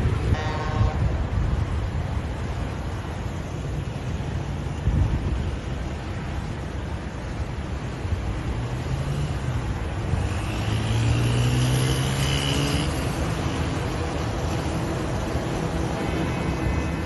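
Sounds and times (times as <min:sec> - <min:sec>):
steady rushing noise: 0:00.0 - 0:17.0
engine passing by: 0:08.4 - 0:17.0.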